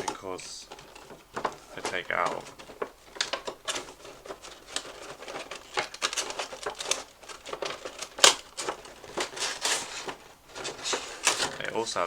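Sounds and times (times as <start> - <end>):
cardboard packaging rustling: 0.0 - 12.0.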